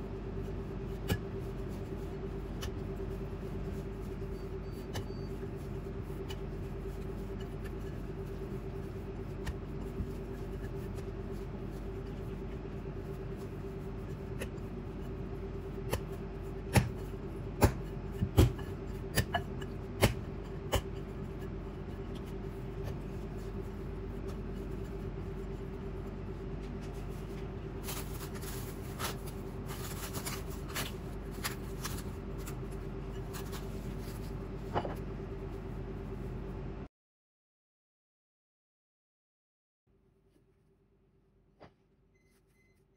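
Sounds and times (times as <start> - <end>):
hands kneading dough: 0.0 - 36.8
steady low hum: 0.0 - 36.9
cling wrap crinkling: 26.8 - 34.3.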